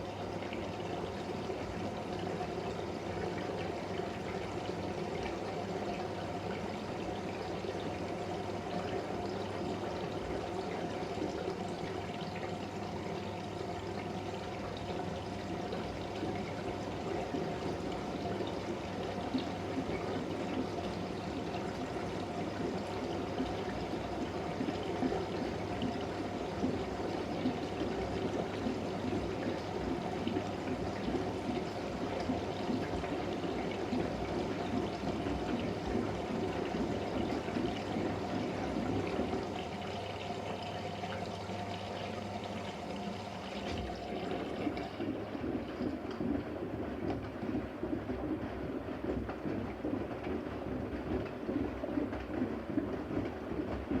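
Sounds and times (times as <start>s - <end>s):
washing machine hum: 0.0s - 54.0s
water splashing in washing machine drum: 6.5s - 54.0s.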